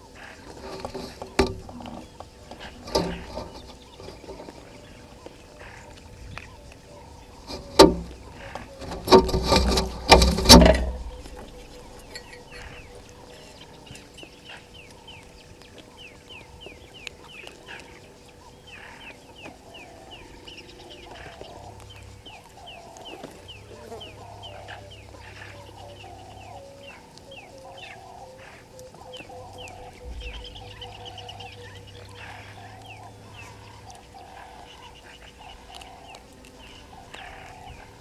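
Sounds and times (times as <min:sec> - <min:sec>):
low clucking bird calls: 0:00.0 - 0:38.0
high falling bird chirps: 0:11.0 - 0:38.0.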